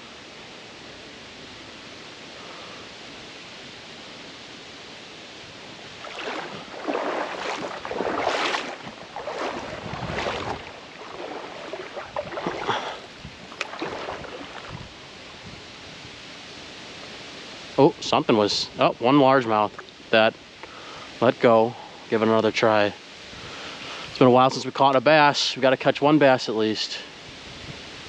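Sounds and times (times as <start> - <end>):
stream hissing: 0.0 - 28.0
water splashing and sloshing: 5.4 - 15.9.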